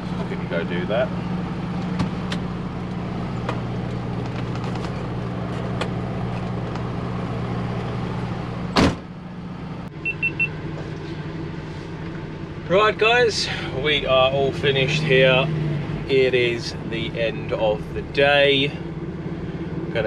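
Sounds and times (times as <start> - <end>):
diesel engine idling: 0.0 - 20.0
short high beeps: 10.0 - 10.6.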